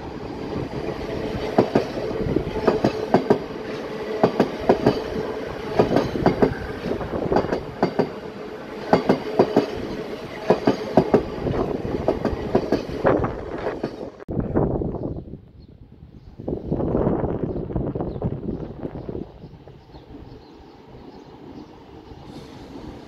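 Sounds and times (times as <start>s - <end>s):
train rumble: 0.0s - 15.0s, 15.9s - 23.0s
train wheels clacking over rail joints: 2.6s - 5.2s, 5.8s - 8.2s, 8.9s - 13.0s.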